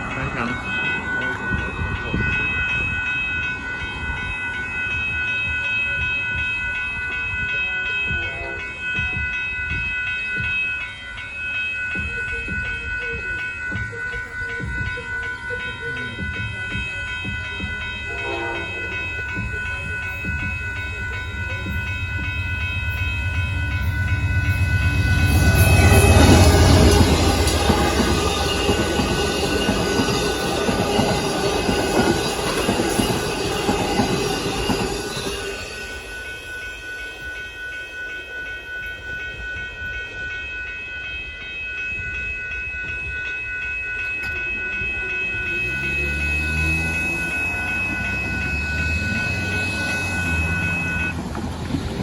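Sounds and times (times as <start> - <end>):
railroad crossing bell: 0.0 - 52.0
train rumbling past: 0.0 - 52.0
train horn: 8.1 - 8.9, 18.0 - 19.2, 45.1 - 51.2.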